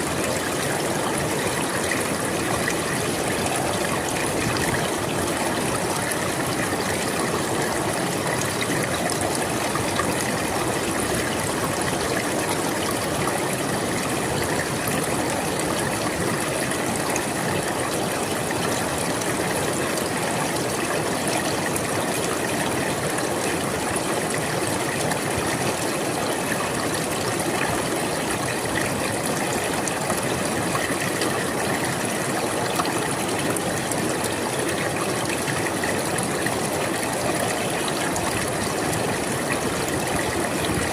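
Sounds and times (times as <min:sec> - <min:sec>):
river water babbling over stones: 0:00.0 - 0:40.9.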